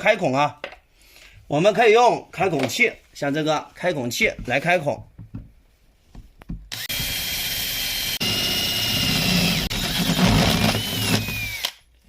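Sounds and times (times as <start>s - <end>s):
drill hole saw cutting plastic pipe: 6.7s - 11.9s.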